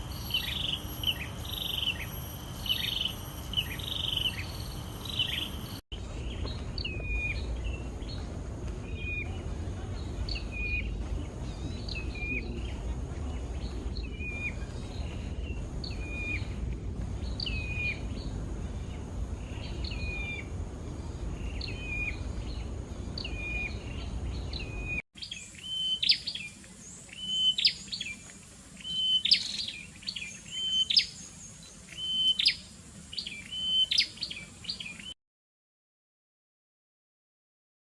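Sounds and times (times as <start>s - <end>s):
low rumble: 0.0s - 25.0s
birds chirping: 0.0s - 35.2s.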